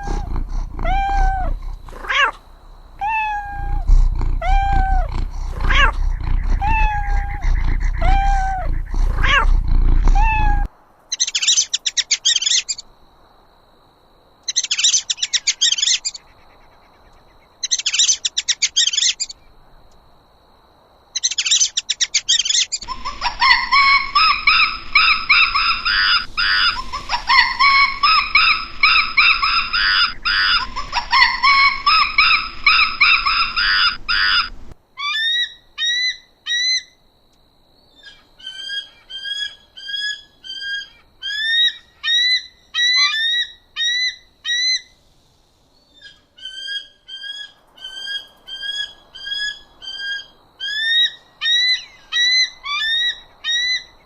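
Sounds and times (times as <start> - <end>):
harsh overlapping bird calls: 0.0 - 12.8, 21.2 - 35.5.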